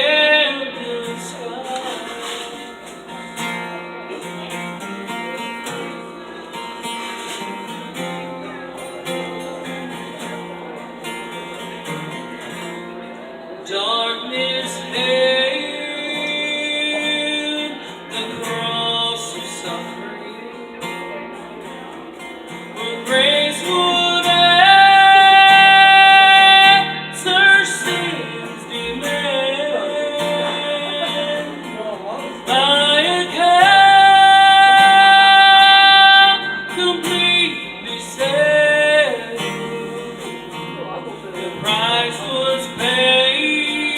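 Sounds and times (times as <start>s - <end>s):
person singing: 0.0s - 3.0s, 13.6s - 20.8s, 22.8s - 43.9s
guitar accompaniment: 0.0s - 43.9s.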